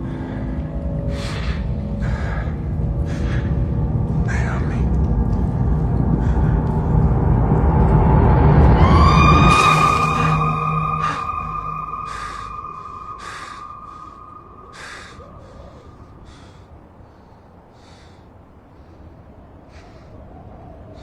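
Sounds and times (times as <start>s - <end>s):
held music tone: 0.0s - 16.2s.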